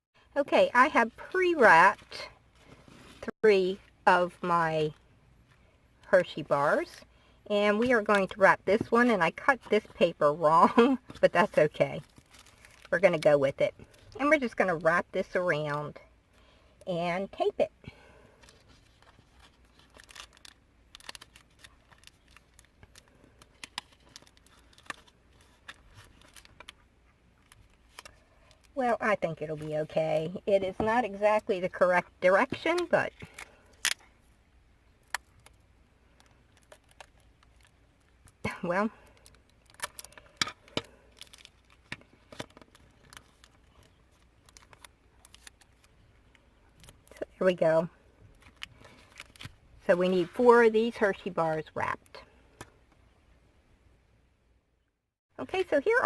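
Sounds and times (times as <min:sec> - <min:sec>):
paper crinkling: 0:12.0 - 0:13.0, 0:18.4 - 0:26.8, 0:39.0 - 0:47.2, 0:48.3 - 0:49.6.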